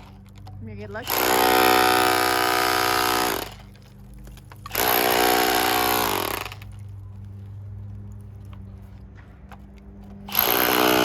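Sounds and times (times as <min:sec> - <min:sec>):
handheld power tool running: 0:00.0 - 0:03.8, 0:04.4 - 0:06.8, 0:10.2 - 0:11.0.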